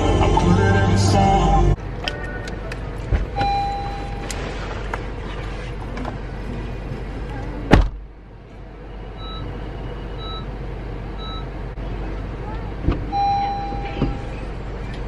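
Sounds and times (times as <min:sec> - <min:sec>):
car engine rumble: 0:00.0 - 0:15.0
short beep: 0:03.4 - 0:04.4, 0:09.1 - 0:10.5, 0:13.1 - 0:14.2
sharp thump: 0:07.7 - 0:08.0.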